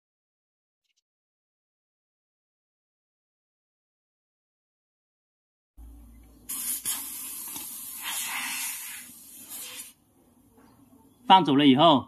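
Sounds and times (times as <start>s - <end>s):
pressurized gas hissing: 6.5s - 10.0s.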